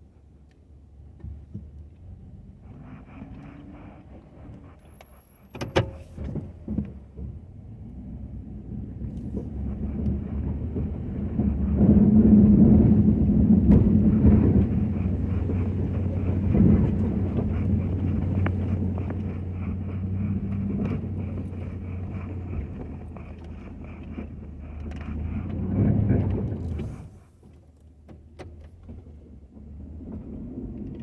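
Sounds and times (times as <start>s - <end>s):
pickup engine running: 1.1s - 31.0s.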